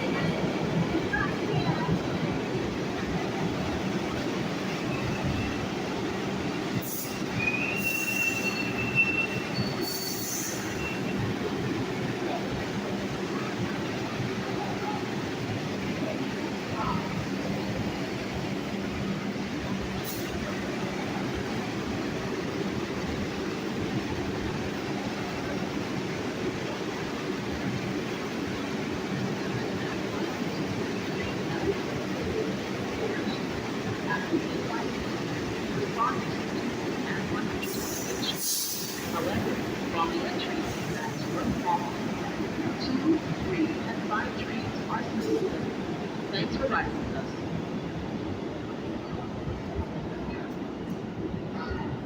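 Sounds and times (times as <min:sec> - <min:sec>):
subway train rumbling: 0:00.0 - 0:52.0
wheels squealing on rails: 0:04.5 - 0:05.9, 0:06.6 - 0:11.7, 0:30.4 - 0:39.5.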